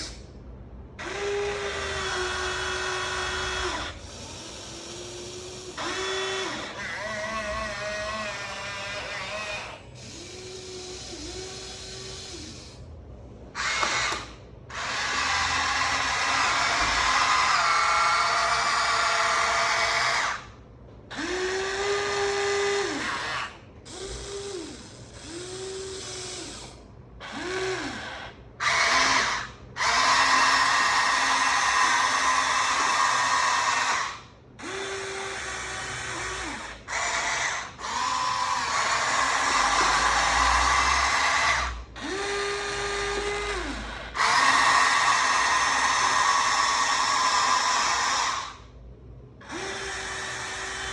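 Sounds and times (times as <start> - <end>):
electric gear motors whining: 0.9 - 12.9, 13.5 - 20.5, 21.1 - 48.7, 49.4 - 50.9
lower motor whine ramping: 37.8 - 46.2.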